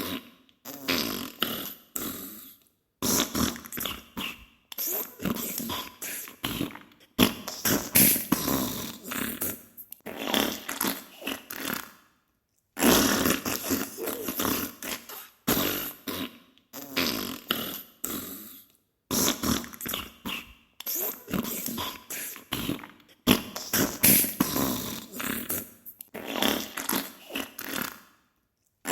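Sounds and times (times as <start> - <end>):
loud crackly farts: 0.0 - 2.3, 7.2 - 12.0, 12.8 - 18.2, 19.1 - 21.8, 22.6 - 28.1.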